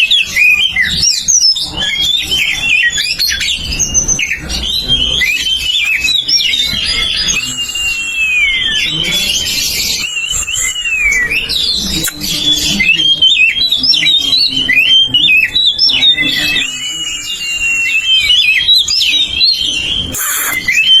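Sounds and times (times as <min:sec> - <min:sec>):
bird singing varied whistles: 0:00.0 - 0:21.0
harsh bird call burst: 0:15.8 - 0:21.0.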